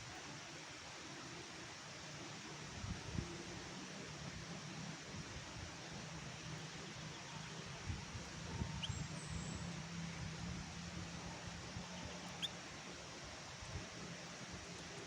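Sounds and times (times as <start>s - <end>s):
steady hiss: 0.0s - 15.0s
bird high chirps: 8.7s - 9.1s, 12.2s - 12.6s.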